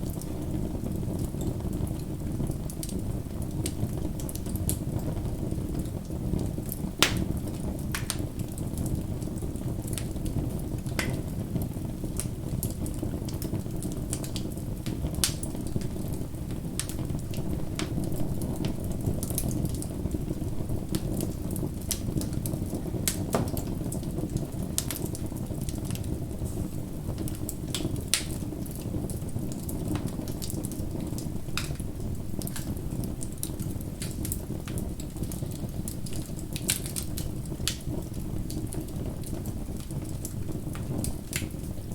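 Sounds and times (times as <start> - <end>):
bonfire flames rushing: 0.0 - 41.9
burning wood crackling and popping: 0.0 - 41.9.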